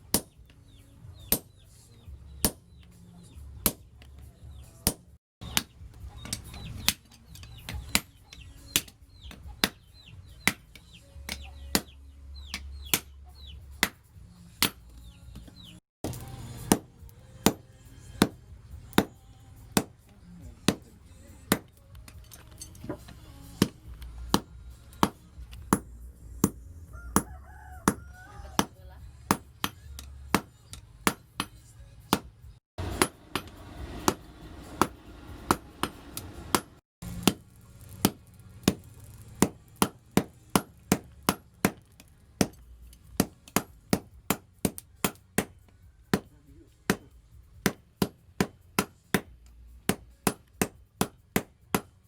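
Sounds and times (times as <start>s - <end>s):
hammer striking steel on anvil: 0.1s - 0.4s, 1.3s - 1.6s, 2.4s - 2.8s, 14.6s - 52.0s.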